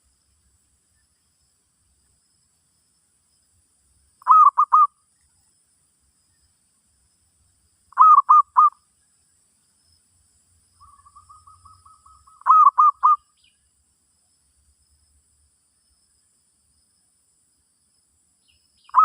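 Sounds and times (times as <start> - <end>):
dove cooing: 4.2 - 4.9, 8.0 - 8.7, 10.8 - 13.2.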